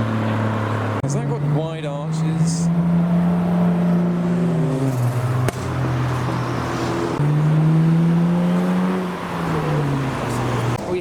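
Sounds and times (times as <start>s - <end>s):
car engine pulling past: 0.0s - 10.8s
sharp crack: 4.7s - 7.2s.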